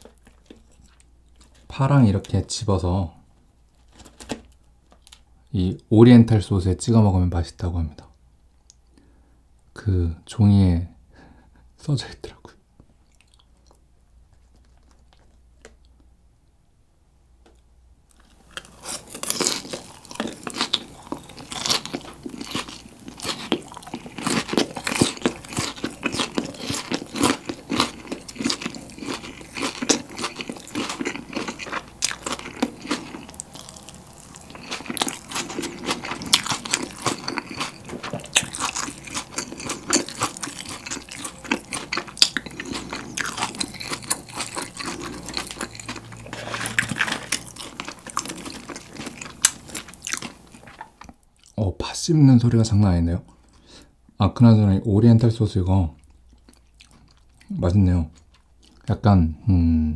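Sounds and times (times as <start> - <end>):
crunchy chewing: 0.0 - 2.4, 13.0 - 16.1, 18.1 - 51.6, 56.0 - 58.9.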